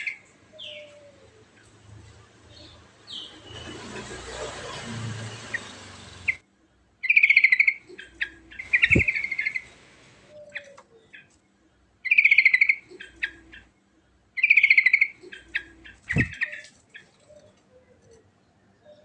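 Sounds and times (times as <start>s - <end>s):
bird chattering song: 7.0s - 11.3s, 12.0s - 13.7s, 14.4s - 19.0s
steady hiss: 8.6s - 10.4s.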